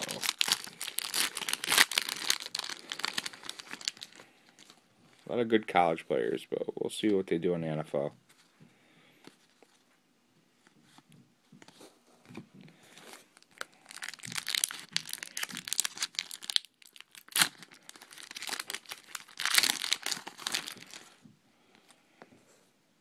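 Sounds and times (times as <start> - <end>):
plastic wrapper crinkling and tearing: 0.0 - 5.4, 12.9 - 21.2.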